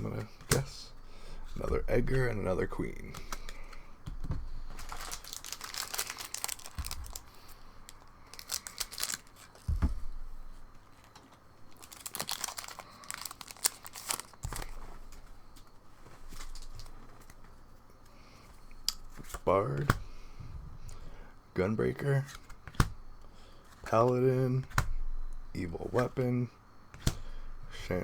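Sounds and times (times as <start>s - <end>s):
foil wrapper crinkling and tearing: 4.7s - 9.8s, 11.0s - 15.2s.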